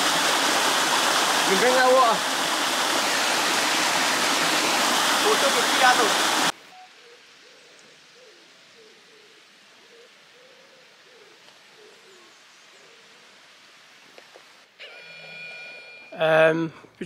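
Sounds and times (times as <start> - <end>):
soft steady hiss: 3.6 - 15.0.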